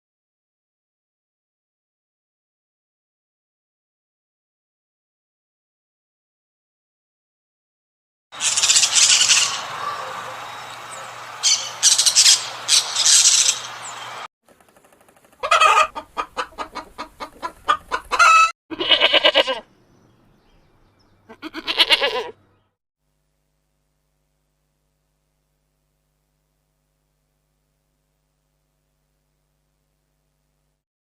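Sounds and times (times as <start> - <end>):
hissing noise with high bursts: 8.4 - 9.8
chickens clucking: 8.5 - 14.2, 15.3 - 18.5.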